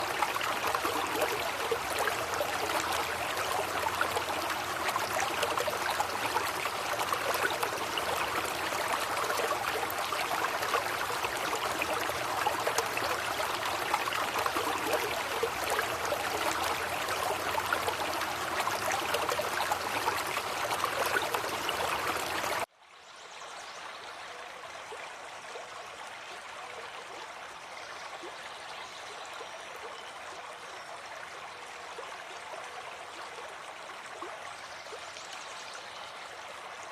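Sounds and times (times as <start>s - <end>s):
rushing water roar: 0.0s - 22.7s
soft rush of water: 0.0s - 36.9s.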